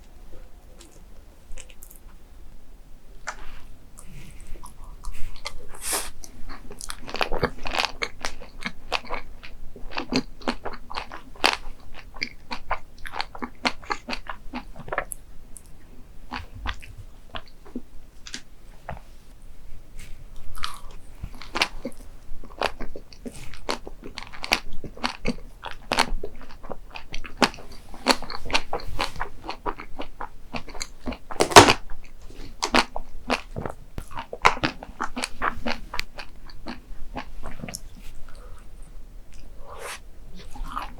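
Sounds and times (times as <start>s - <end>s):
person chewing crunchy food: 0.7s - 2.2s, 3.2s - 19.1s, 20.0s - 40.9s.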